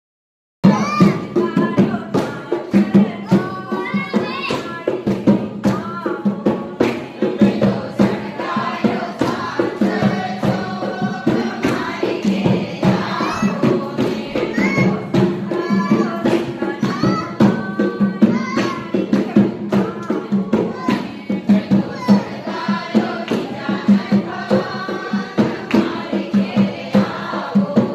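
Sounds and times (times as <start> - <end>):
group singing devotional song: 0.6 - 27.9
steady percussive beat: 0.6 - 27.9.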